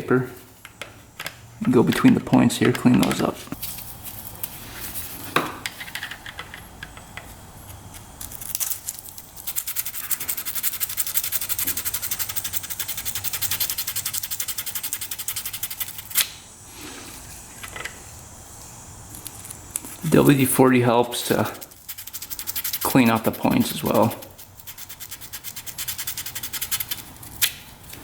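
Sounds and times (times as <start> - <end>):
sandpaper rubbing on metal: 9.4 - 16.2, 20.0 - 27.4.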